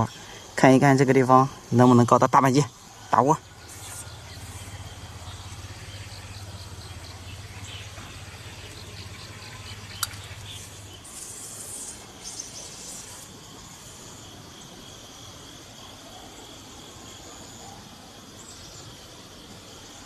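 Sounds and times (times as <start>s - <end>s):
insects chirping: 0.0s - 20.0s
low hum: 2.8s - 14.0s
short high hiss: 3.6s - 5.7s, 9.8s - 14.0s
sharp click: 9.9s - 10.4s.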